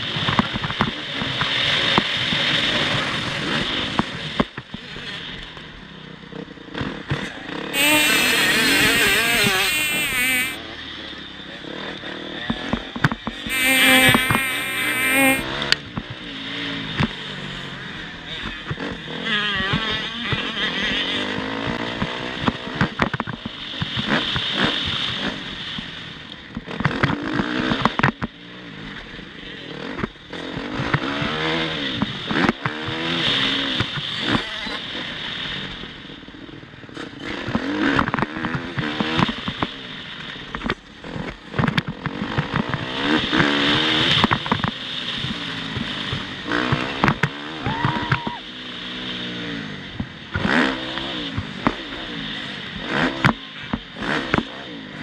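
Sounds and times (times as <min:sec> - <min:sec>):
motocross bike engine revving: 0:07.8 - 0:10.6, 0:13.5 - 0:15.6, 0:50.4 - 0:51.5.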